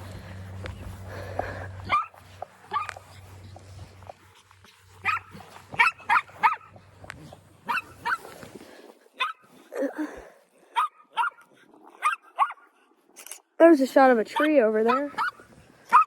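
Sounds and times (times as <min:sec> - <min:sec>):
dog barking: 0:01.8 - 0:03.0, 0:05.0 - 0:06.8, 0:07.6 - 0:08.3, 0:10.8 - 0:11.4, 0:12.0 - 0:12.6, 0:14.4 - 0:16.0.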